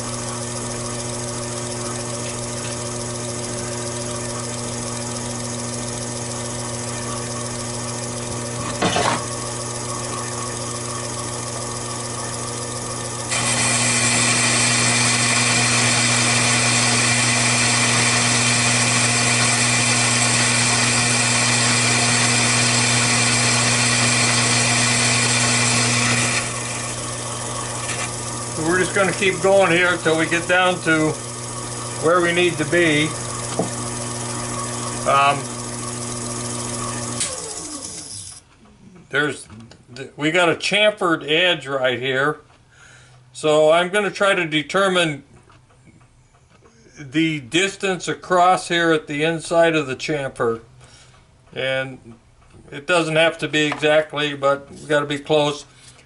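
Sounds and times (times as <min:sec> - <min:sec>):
lathe cutting hiss: 0:00.0 - 0:38.4
lathe motor hum: 0:00.0 - 0:38.5.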